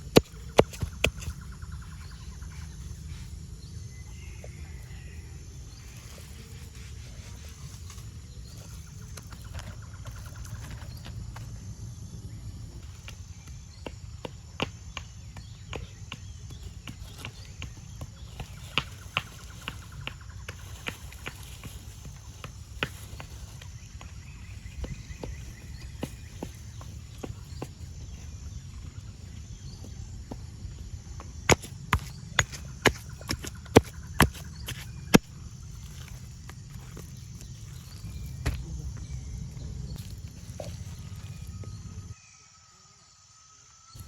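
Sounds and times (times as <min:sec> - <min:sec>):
steady low rumble: 0:17.4 - 0:42.2.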